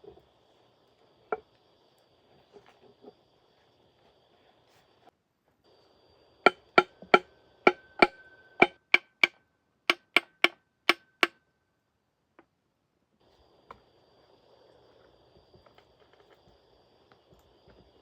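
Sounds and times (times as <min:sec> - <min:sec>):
hammer striking metal: 0:06.5 - 0:11.4
ringing tone: 0:07.7 - 0:08.7.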